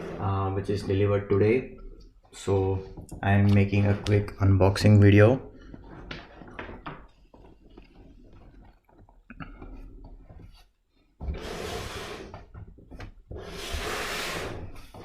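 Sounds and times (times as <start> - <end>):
small knocks and shuffles: 0.0 - 11.4, 12.2 - 13.5
cardboard rubbing and scraping: 9.8 - 15.0.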